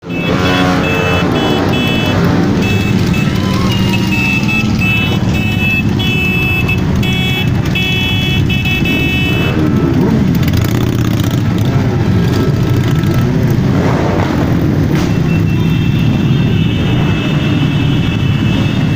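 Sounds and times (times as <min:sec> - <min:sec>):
high electronic beeping: 0:00.0 - 0:09.5
motorcycle engine revving: 0:00.0 - 0:18.9
motorcycle engines rumbling: 0:00.0 - 0:18.9.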